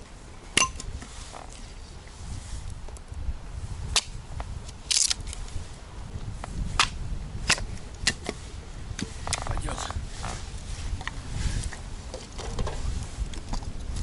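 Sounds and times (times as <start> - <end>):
low wind rumble: 0.0 - 14.0
firewood cracking: 4.7 - 5.5.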